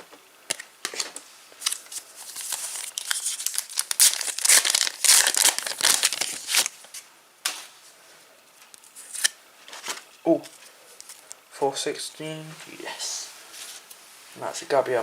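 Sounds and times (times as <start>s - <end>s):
foil pack tearing and crinkling: 1.6s - 6.8s.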